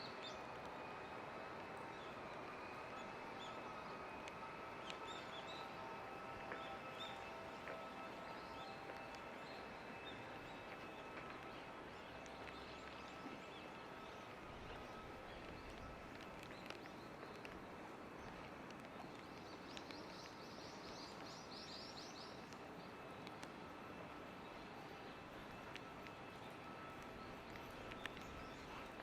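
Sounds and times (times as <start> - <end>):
rain falling: 0.5 - 29.0
water dripping: 8.8 - 21.4.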